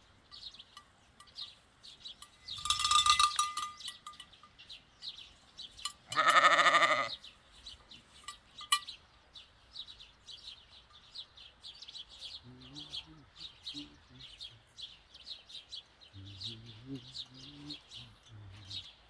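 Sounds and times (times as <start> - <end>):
small birds chirping: 0.0 - 19.0
sheep bell clanking: 0.2 - 7.1, 8.2 - 9.0
sheep bleating: 6.1 - 7.2.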